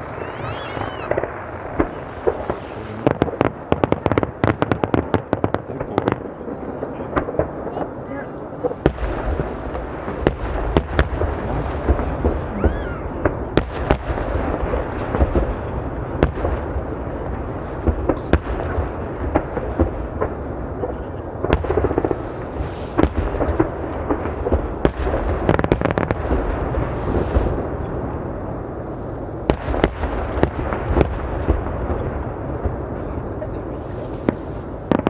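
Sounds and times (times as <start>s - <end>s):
fireworks shells bursting: 0.0s - 3.2s.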